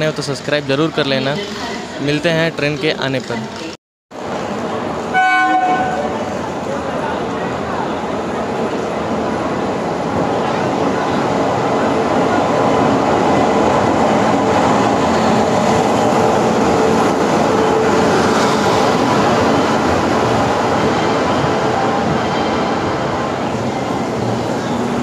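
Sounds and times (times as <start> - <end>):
train wheels on rails: 5.8 - 25.0.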